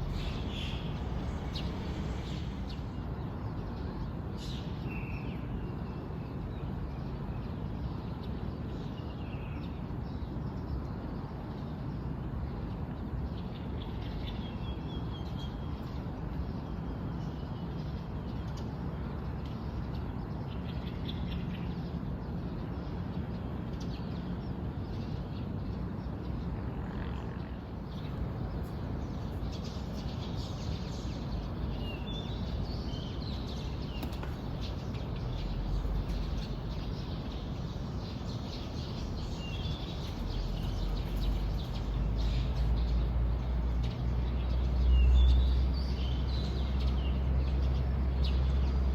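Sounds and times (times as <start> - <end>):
low background rumble: 0.0 - 3.2, 27.8 - 47.8
small birds chirping: 0.0 - 5.8, 27.7 - 48.9.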